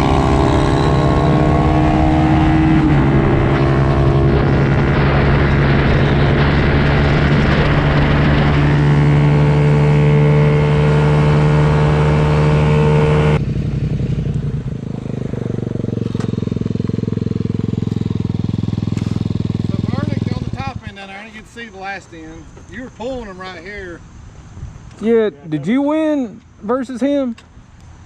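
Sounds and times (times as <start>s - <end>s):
small engine running: 9.4s - 20.9s.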